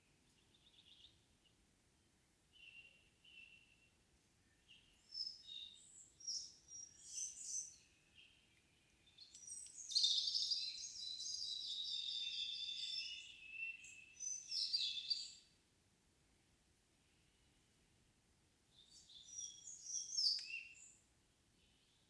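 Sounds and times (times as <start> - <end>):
songbirds chirping: 0.0 - 15.7, 16.3 - 22.0
bird warbling song: 4.6 - 15.4, 18.8 - 21.0.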